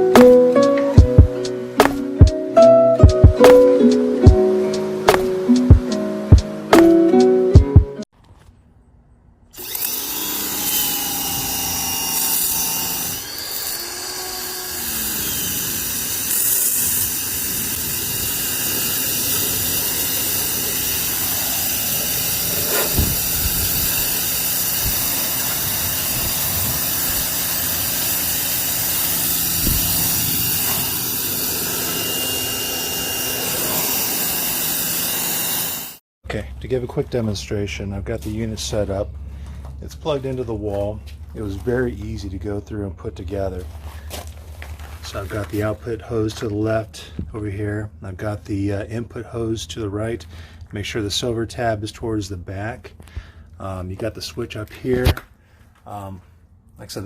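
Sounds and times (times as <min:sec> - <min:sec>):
motor and pump humming: 0:09.6 - 0:36.0
pressure washer spraying water: 0:09.6 - 0:36.0.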